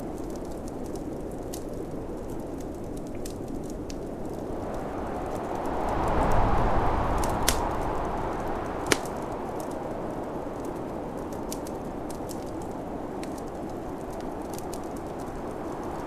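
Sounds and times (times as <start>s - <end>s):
fireplace crackling: 0.0s - 16.0s
wind blowing: 1.0s - 16.0s
sharp log pop: 8.9s - 9.1s.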